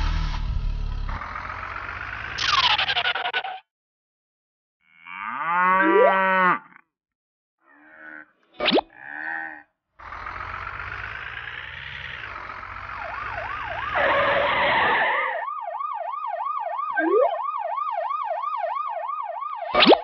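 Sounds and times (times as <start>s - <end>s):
vehicle engine running: 0.0s - 3.2s, 10.0s - 14.1s
police siren yelping: 11.9s - 20.0s.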